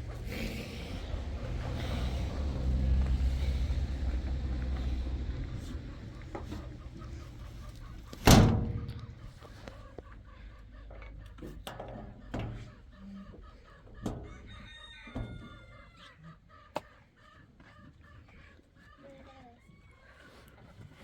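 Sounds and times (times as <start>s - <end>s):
chickens clucking: 0.0s - 21.0s
loud thump: 8.2s - 9.1s
rooster crowing: 14.2s - 16.2s.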